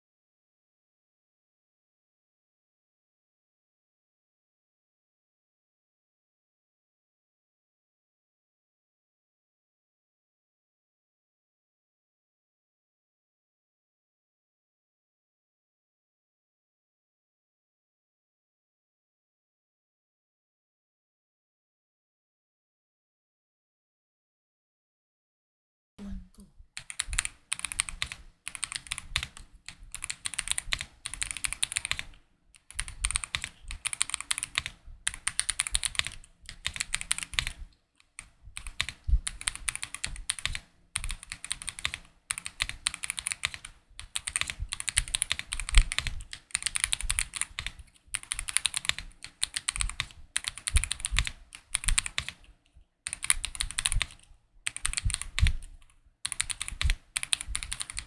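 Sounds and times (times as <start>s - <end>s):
mechanical keyboard typing: 26.8s - 52.4s, 53.1s - 55.7s, 56.3s - 58.0s.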